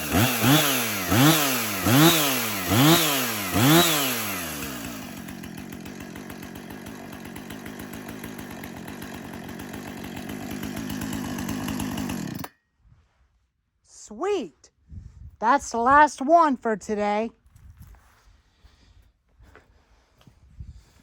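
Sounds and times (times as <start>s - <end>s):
chainsaw engine revving and idling: 0.0s - 12.6s.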